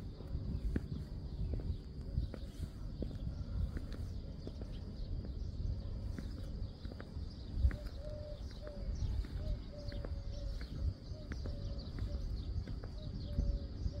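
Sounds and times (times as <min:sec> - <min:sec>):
low rumble: 0:00.0 - 0:14.0
high bird chirps: 0:00.4 - 0:14.0
bird hooting: 0:07.7 - 0:14.0.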